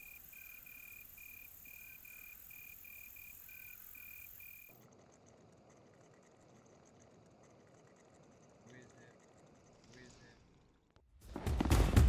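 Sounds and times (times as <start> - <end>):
cricket chirping: 0.0 - 4.8.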